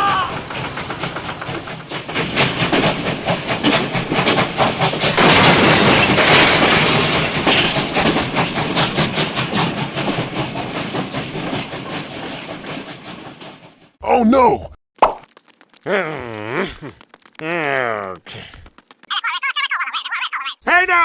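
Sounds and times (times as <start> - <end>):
hissing rush: 0.0 - 2.0
rapid mechanical clatter: 0.0 - 13.9.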